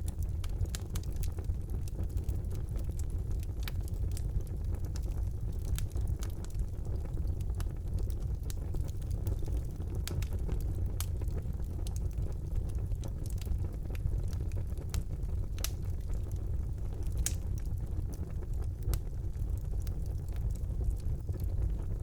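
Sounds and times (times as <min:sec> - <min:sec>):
fire crackling and popping: 0:00.0 - 0:22.0
wood fire rumbling: 0:00.0 - 0:22.0.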